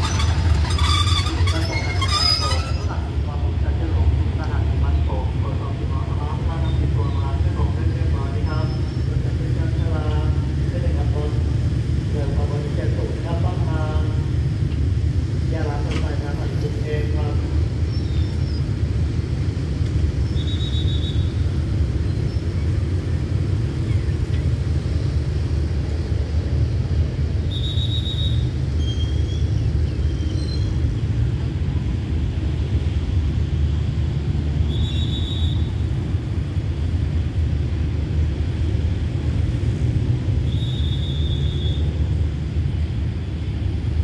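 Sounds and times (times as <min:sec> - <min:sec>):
short high squeaks: 0:00.0 - 0:03.1, 0:27.6 - 0:30.8
train coaches rumbling past: 0:00.0 - 0:44.0.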